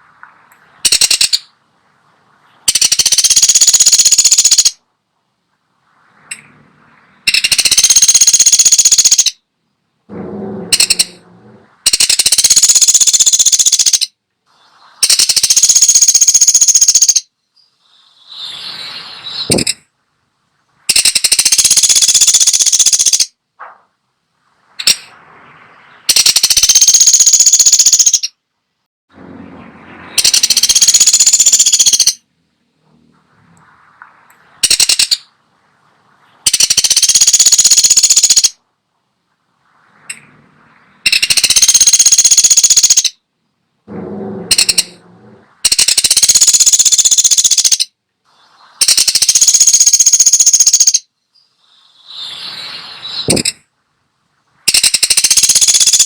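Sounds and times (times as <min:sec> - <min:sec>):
woodpecker rattling: 0:00.0 - 0:01.6, 0:02.6 - 0:04.8, 0:07.3 - 0:09.4, 0:10.1 - 0:14.2, 0:15.0 - 0:17.3, 0:20.9 - 0:23.4, 0:24.8 - 0:25.1, 0:25.8 - 0:28.4, 0:30.1 - 0:32.2, 0:34.6 - 0:35.3, 0:36.4 - 0:38.6, 0:41.0 - 0:43.2, 0:43.9 - 0:47.9, 0:48.8 - 0:51.1, 0:53.2 - 0:53.6, 0:54.7 - 0:56.0.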